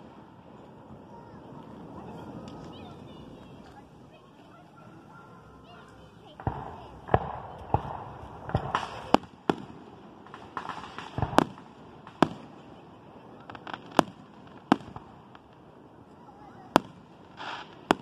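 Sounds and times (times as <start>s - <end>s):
fireworks bangs: 5.5s - 18.0s.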